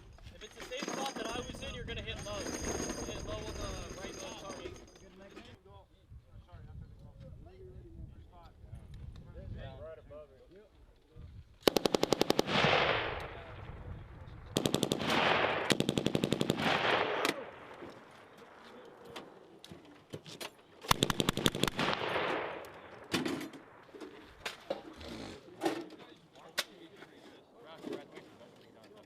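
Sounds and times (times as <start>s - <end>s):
machine gun firing bursts: 11.6s - 13.2s, 14.5s - 17.6s, 20.9s - 22.6s
rolling echo of gunfire: 11.6s - 13.6s, 14.5s - 18.6s, 20.8s - 24.1s.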